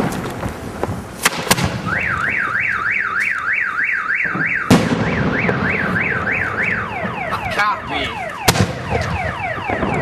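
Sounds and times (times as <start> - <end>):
firecracker bangs: 0.0 - 2.6, 4.2 - 7.3, 8.4 - 10.0
car alarm siren warbling: 1.8 - 10.0.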